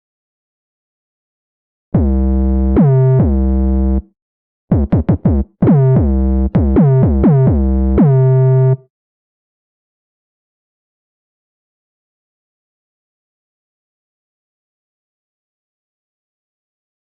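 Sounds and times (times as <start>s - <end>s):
buzzy synth bass notes: 2.0s - 4.0s, 4.7s - 8.8s.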